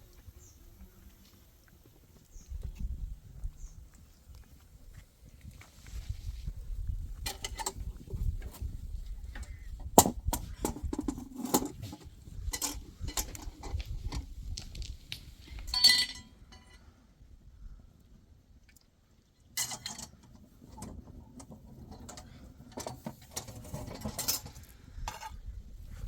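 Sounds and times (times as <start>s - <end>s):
knocks and clinks: 15.7s - 16.8s.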